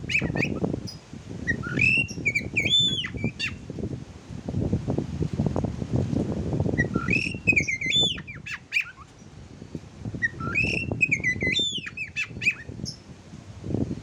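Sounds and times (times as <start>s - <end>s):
whistled birdsong: 0.0s - 3.6s, 6.7s - 9.2s, 10.2s - 13.0s
low rustling noise: 2.1s - 7.6s.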